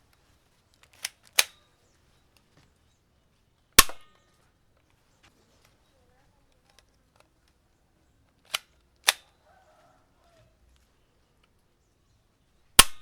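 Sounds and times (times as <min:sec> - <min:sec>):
toy gun snaps: 0:01.0 - 0:01.6, 0:03.8 - 0:04.1, 0:08.5 - 0:09.3, 0:12.8 - 0:13.0.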